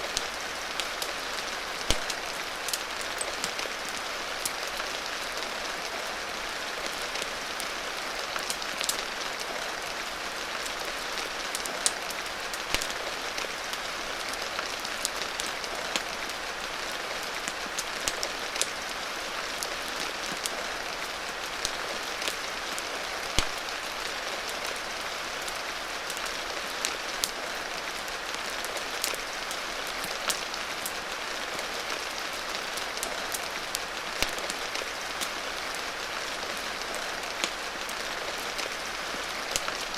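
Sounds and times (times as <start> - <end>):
steady rain hissing: 0.0 - 39.9
wood fire crackling and popping: 0.1 - 4.8, 10.7 - 13.6, 21.6 - 22.5, 23.2 - 24.8, 32.8 - 35.4, 39.5 - 39.9.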